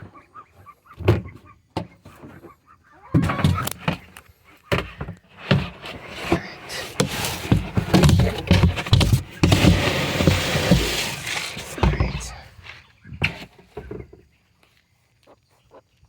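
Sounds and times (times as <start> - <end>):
things being handled: 4.8 - 14.0.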